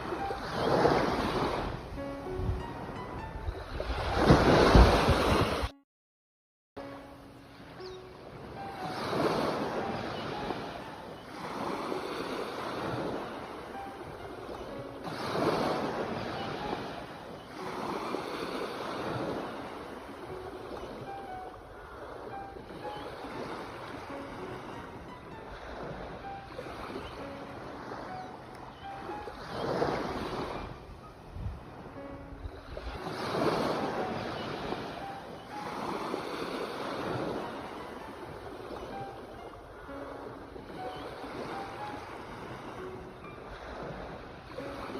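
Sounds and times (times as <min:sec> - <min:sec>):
sea waves washing on shore: 0:00.0 - 0:05.7, 0:06.8 - 0:44.9
wind rumble on microphone: 0:00.0 - 0:05.7, 0:30.0 - 0:34.9.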